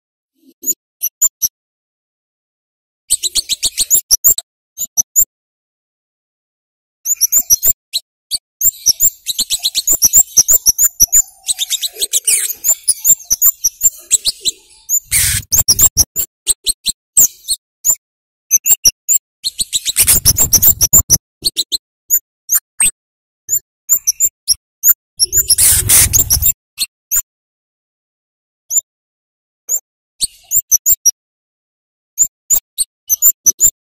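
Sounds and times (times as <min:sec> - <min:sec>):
bird high chip calls: 0:03.1 - 0:05.3, 0:07.1 - 0:18.0, 0:18.6 - 0:22.2, 0:23.5 - 0:27.2.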